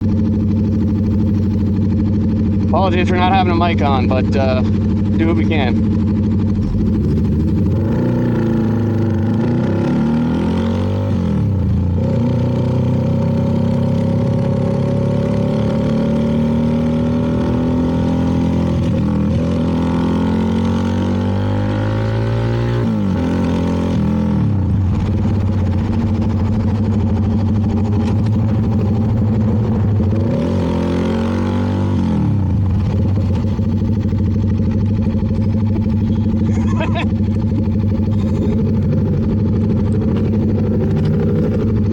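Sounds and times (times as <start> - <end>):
motorcycle engine revving: 0.0 - 41.9
wind and road noise: 16.6 - 41.9.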